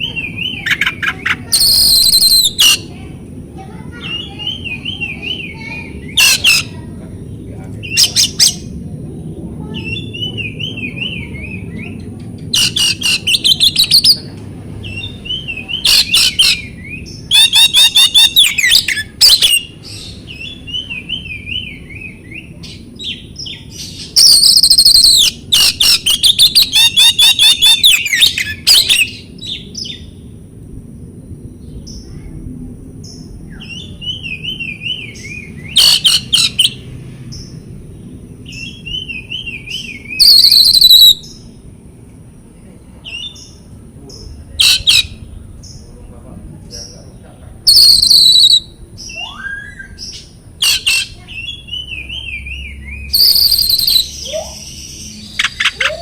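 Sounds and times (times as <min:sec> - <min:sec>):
songbird whistling and chattering: 0:00.0 - 0:03.0, 0:04.0 - 0:06.8, 0:07.8 - 0:08.7, 0:09.6 - 0:30.1, 0:33.5 - 0:36.8, 0:38.4 - 0:41.5, 0:43.0 - 0:45.8, 0:47.6 - 0:56.0.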